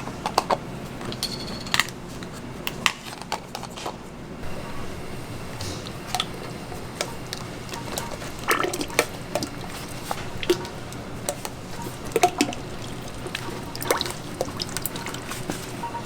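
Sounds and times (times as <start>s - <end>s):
liquid trickling and dripping: 7.2s - 15.8s.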